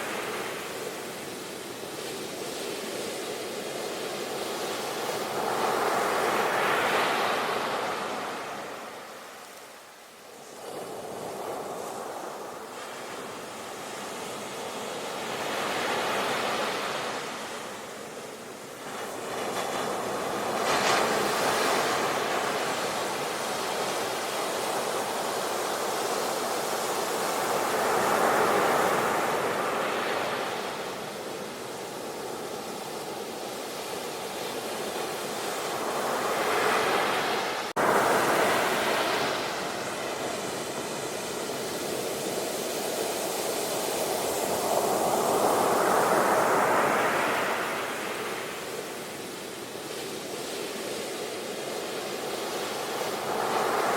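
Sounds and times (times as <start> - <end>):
sea waves breaking: 34.9 - 53.9.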